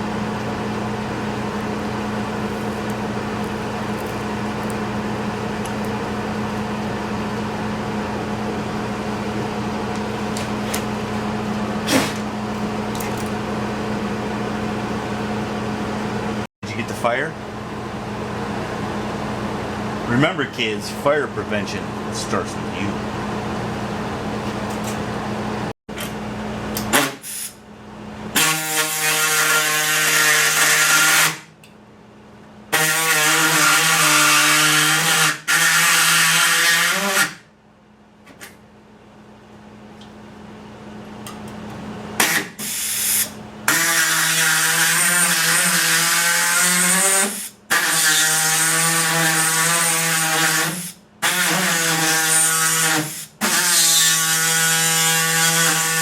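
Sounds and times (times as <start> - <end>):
power tool motor running: 42.2 - 56.0.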